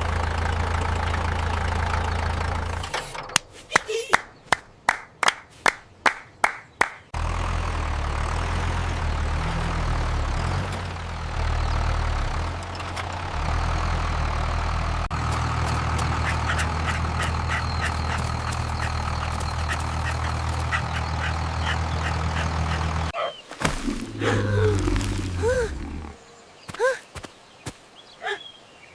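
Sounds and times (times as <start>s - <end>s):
tractor engine running: 0.0s - 3.6s, 7.1s - 26.2s.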